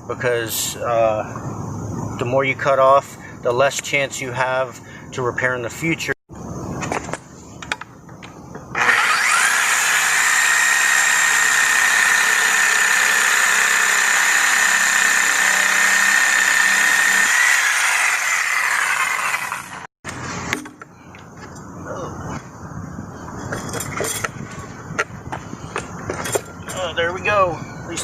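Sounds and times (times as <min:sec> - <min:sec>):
reciprocating saw cutting pipe: 0:08.7 - 0:19.9.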